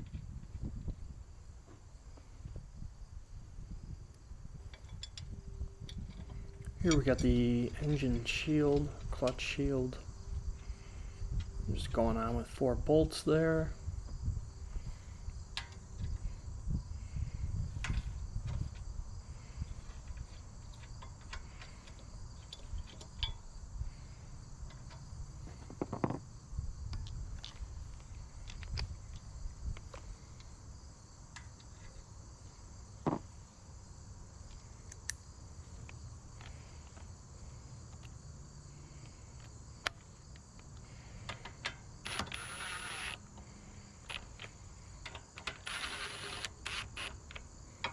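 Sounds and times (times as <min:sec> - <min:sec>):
high-pitched insect chorus: 0:00.0 - 0:47.9
hand tools clicking and knocking: 0:47.3 - 0:47.9.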